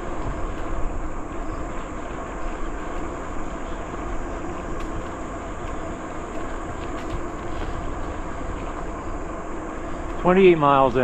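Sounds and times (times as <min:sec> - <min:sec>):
bicycle tyres rolling: 0:00.0 - 0:11.0.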